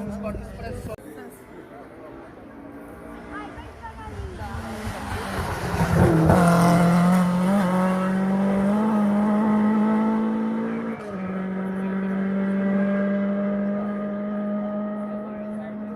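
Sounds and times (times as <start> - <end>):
car engine at high revs: 4.4 - 15.9.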